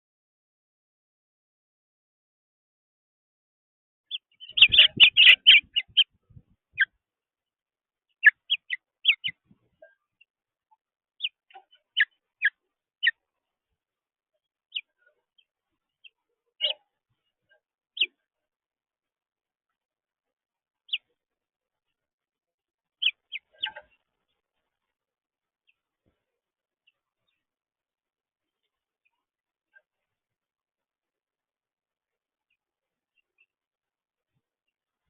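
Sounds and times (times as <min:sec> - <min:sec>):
small birds chirping: 0:04.1 - 0:07.0, 0:08.1 - 0:13.4, 0:14.4 - 0:18.3, 0:20.8 - 0:21.2, 0:23.0 - 0:24.8, 0:25.6 - 0:27.5, 0:32.5 - 0:33.6.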